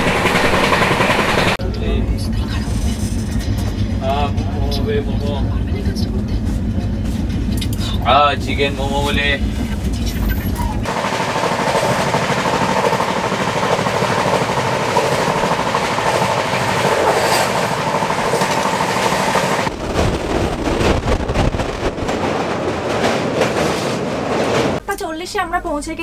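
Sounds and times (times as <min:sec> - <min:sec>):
train wheels clattering on rails: 0:00.0 - 0:01.6, 0:05.8 - 0:24.8
low rumble on bridge: 0:00.0 - 0:10.9, 0:12.8 - 0:24.8.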